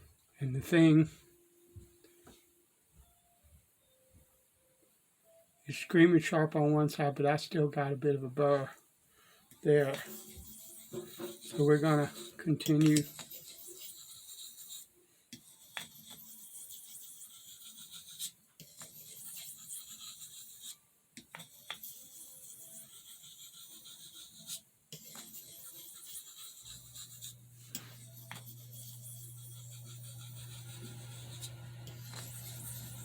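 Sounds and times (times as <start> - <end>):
knife scraping on whetstone: 9.8 - 33.0.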